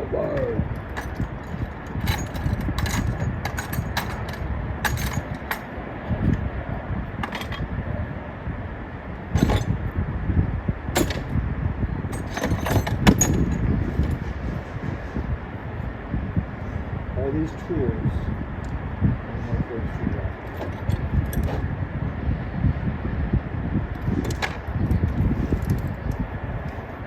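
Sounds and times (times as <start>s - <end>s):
low rumble: 0.0s - 27.0s
metal tools clinking: 0.3s - 6.4s, 7.2s - 7.7s, 9.4s - 9.8s, 11.0s - 11.4s, 12.0s - 14.3s, 20.4s - 21.7s, 24.0s - 26.0s.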